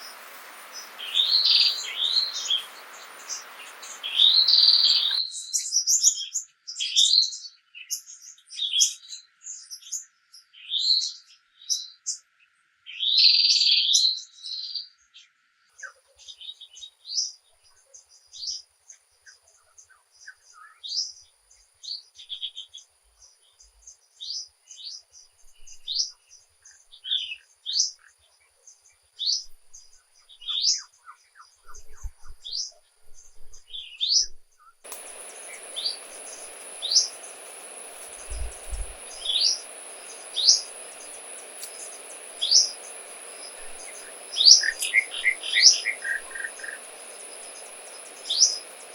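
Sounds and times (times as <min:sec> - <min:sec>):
bird chirping: 0:00.0 - 0:05.2, 0:33.7 - 0:48.9
steady hiss: 0:00.0 - 0:05.2, 0:34.9 - 0:48.9
thin steady high tone: 0:00.0 - 0:05.2, 0:34.9 - 0:48.9.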